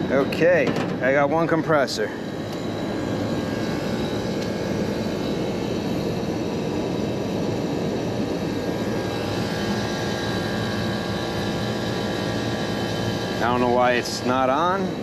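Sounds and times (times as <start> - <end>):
air conditioning unit humming: 0.0 - 15.0.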